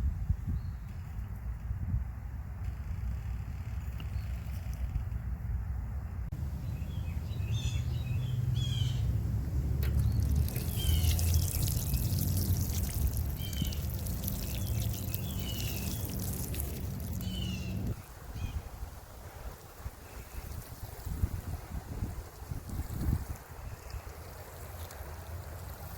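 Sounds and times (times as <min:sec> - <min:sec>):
steady low rumble: 0:05.3 - 0:18.3
birds chirping: 0:06.4 - 0:18.6.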